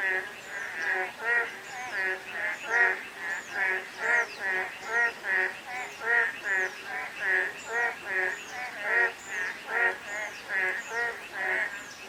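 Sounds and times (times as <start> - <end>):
frogs croaking in chorus: 0.0 - 12.0.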